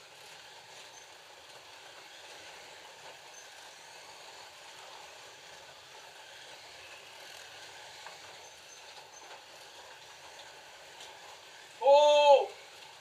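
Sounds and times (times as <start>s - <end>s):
slot car motors whirring: 0.0s - 11.8s.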